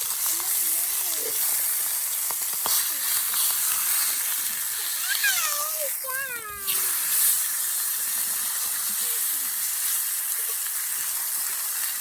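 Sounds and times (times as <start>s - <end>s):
food sizzling in a skillet: 0.0s - 12.0s.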